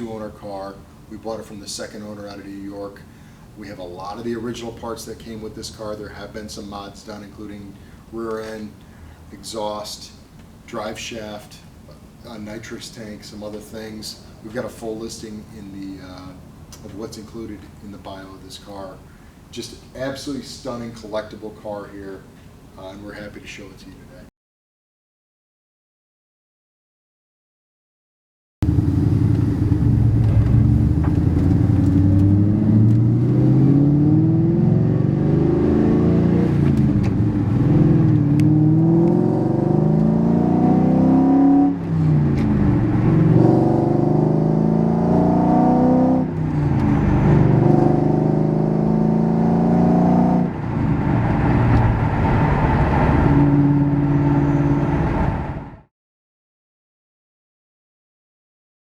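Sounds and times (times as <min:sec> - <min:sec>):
car engine accelerating: 0:28.6 - 0:55.8.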